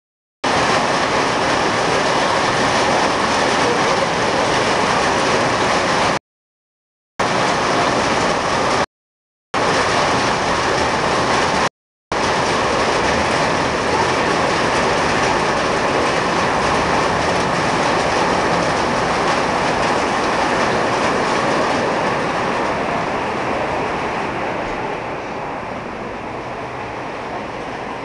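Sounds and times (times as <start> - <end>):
hail and heavy rain falling: 0.5 - 6.2, 9.6 - 23.0.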